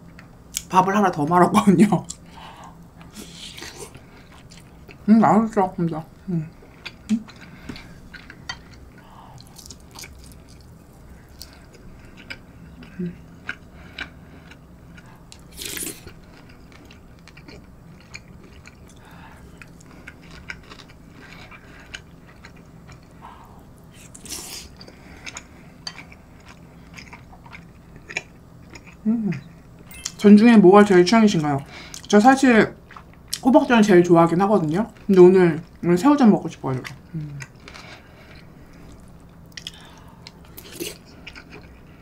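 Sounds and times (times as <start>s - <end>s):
wet chewing of soft food: 2.1s - 5.1s, 6.5s - 30.0s, 36.8s - 42.0s.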